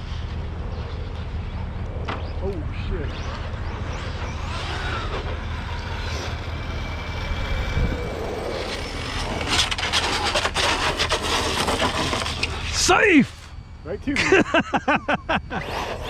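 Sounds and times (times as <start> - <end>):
electric motors whining: 0.8 - 16.0
rc car skidding on asphalt: 3.1 - 13.6, 15.5 - 16.0.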